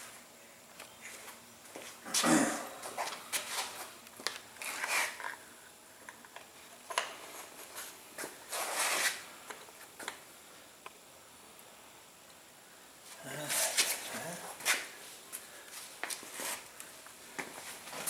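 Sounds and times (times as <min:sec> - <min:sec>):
rustling of parts: 0:03.0 - 0:05.4.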